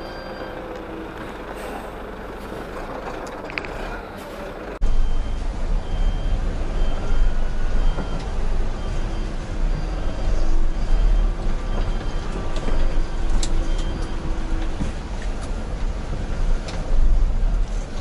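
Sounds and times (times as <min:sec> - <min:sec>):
faint high beep: 0:00.0 - 0:00.7, 0:04.9 - 0:08.2
diesel engine rumbling: 0:00.0 - 0:18.0.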